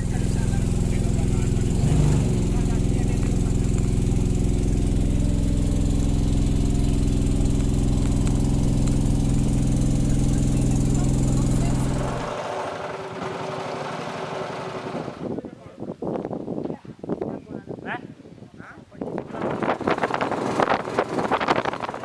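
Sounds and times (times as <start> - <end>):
engine running steadily: 0.0 - 15.4, 19.2 - 22.0.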